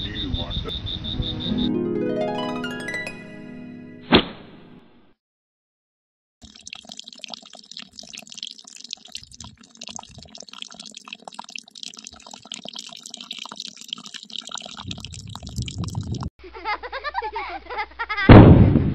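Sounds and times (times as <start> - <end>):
water trickling onto sand: 6.4 - 16.2.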